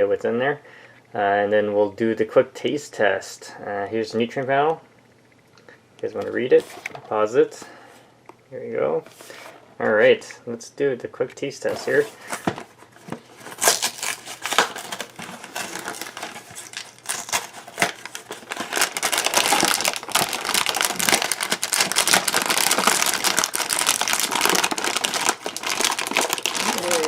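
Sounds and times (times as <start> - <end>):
plastic bag crackling rustle: 13.3 - 27.0.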